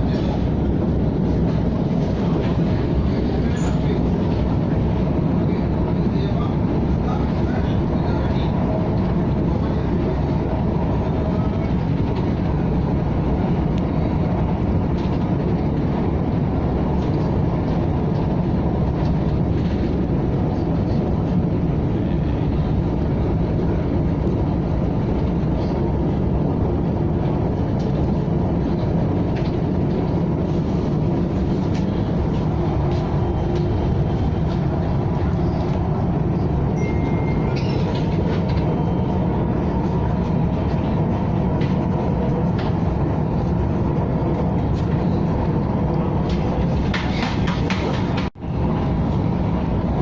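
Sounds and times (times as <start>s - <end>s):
electric train rumbling: 0.0s - 50.0s.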